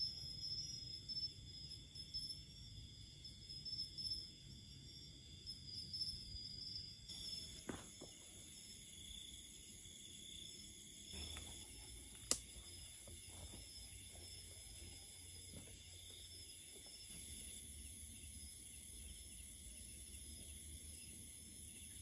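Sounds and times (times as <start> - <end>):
insects trilling: 0.0 - 22.0
sharp click: 12.2 - 12.5.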